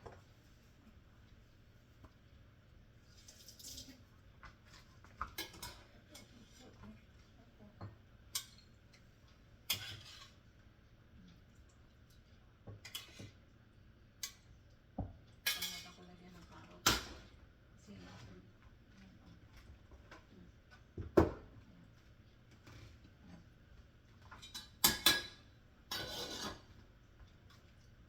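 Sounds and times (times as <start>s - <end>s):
dishes and utensils clinking: 4.5s - 6.8s, 8.3s - 10.4s, 12.7s - 13.4s, 15.4s - 16.1s, 24.2s - 26.9s.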